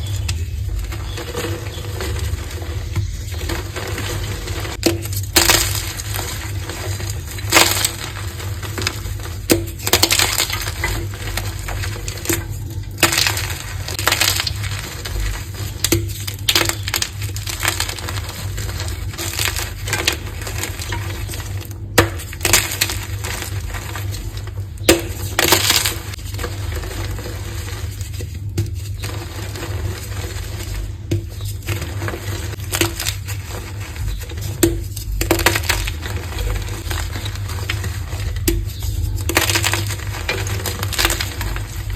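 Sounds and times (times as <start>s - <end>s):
chalk crunching: 0.0s - 41.9s
steady low hum: 0.0s - 41.9s.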